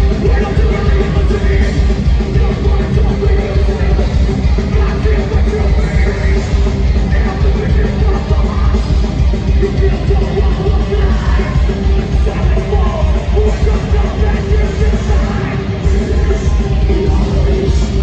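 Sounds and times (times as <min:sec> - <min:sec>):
fast pounding drums: 0:00.0 - 0:18.0
heavy metal band playing live: 0:00.0 - 0:18.0.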